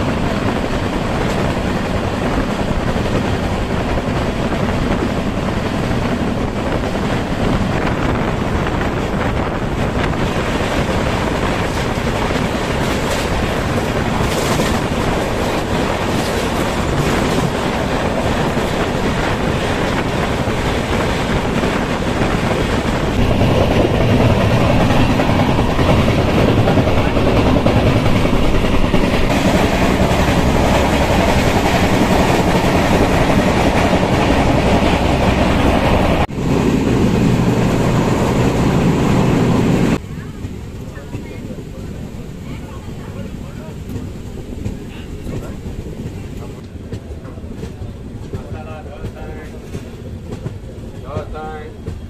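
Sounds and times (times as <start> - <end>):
train wheels clattering over rails: 0.0 - 52.0.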